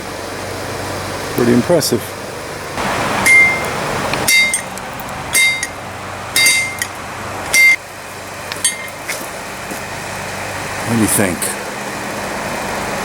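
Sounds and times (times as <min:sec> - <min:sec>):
steady background noise: 0:00.0 - 0:13.0
hammer striking hot steel: 0:03.1 - 0:07.8, 0:08.5 - 0:09.3
anvil ringing: 0:03.2 - 0:07.8, 0:08.5 - 0:09.2.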